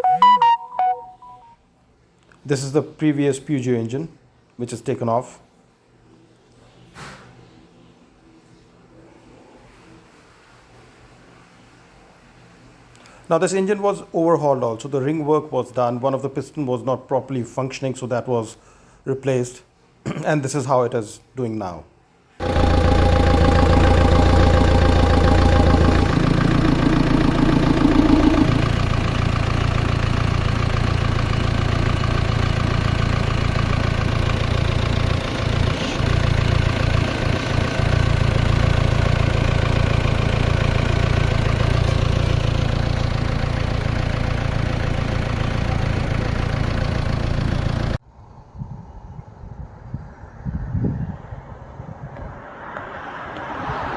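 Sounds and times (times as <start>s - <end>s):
high steady whine: 22.4s - 30.0s
diesel engine running: 22.4s - 48.0s.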